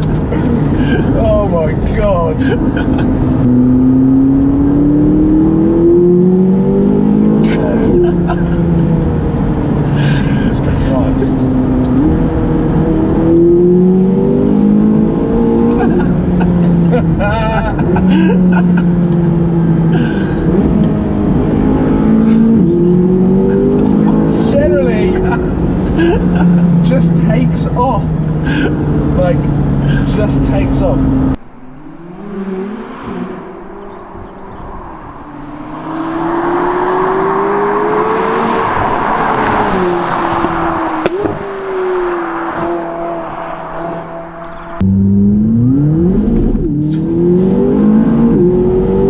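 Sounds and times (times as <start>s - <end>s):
car engine running at steady revs: 0.0s - 37.3s.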